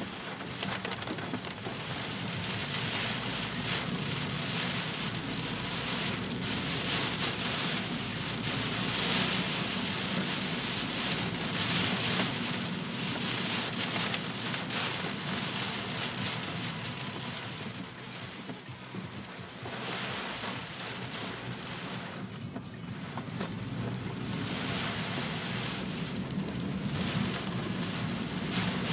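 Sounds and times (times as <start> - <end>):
heavy rain hissing: 0.0 - 28.9
low rumble: 21.1 - 28.9.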